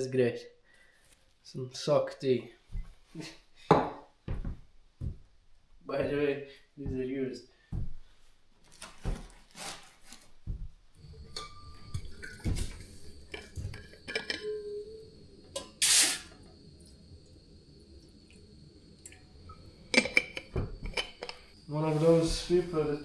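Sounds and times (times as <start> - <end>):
water pouring: 11.0 - 14.4
cups and utensils clinking: 11.0 - 16.3, 19.9 - 21.6
short loud hiss: 15.6 - 16.4.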